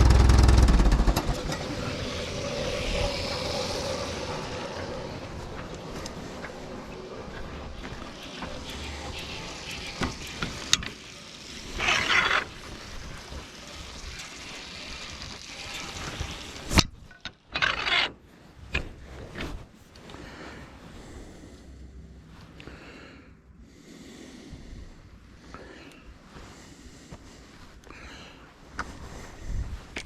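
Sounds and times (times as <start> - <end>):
wood scraping and rubbing: 0.0 - 19.8.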